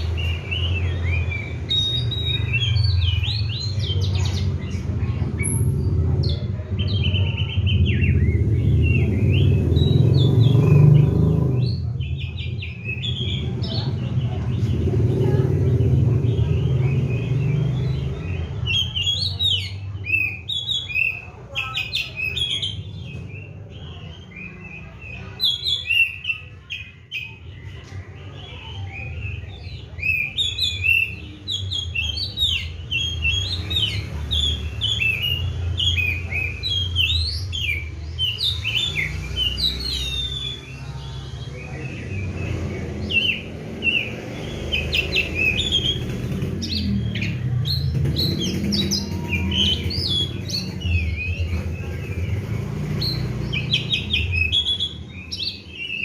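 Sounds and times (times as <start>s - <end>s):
bird chirping and whistling: 0.0s - 4.8s, 29.0s - 40.9s, 41.6s - 56.0s.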